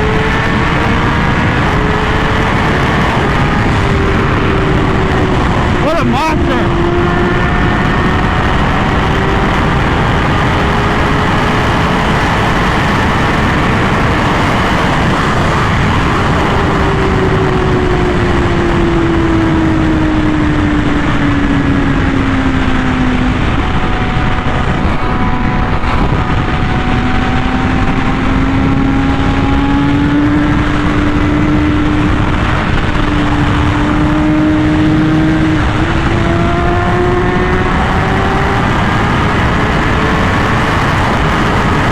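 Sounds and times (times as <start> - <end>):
heavy wind rush: 0.0 - 41.9
motorcycle engine at speed: 0.0 - 41.9.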